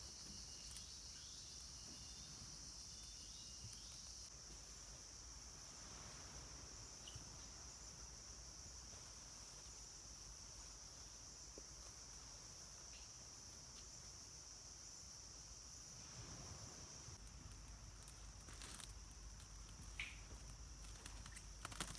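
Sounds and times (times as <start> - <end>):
forest insects droning: 0.0 - 21.9.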